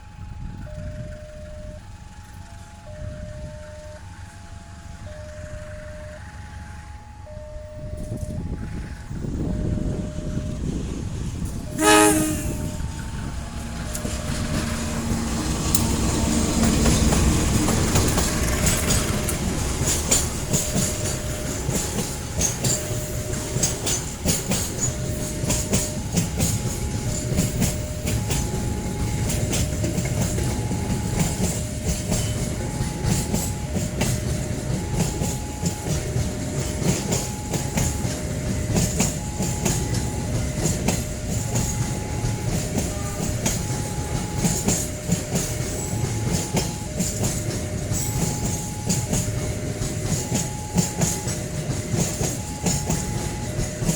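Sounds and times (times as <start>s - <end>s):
two-tone crossing alarm: 0.0s - 53.9s
train wheels clattering: 11.3s - 53.9s
train horn note: 11.7s - 15.0s.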